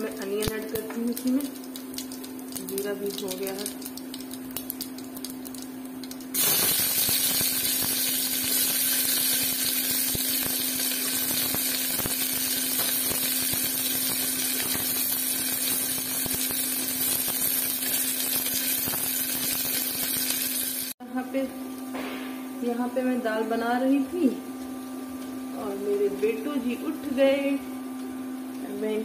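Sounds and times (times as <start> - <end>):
seeds crackling in hot oil: 0.0 - 21.0
onions sizzling in oil: 0.5 - 21.0.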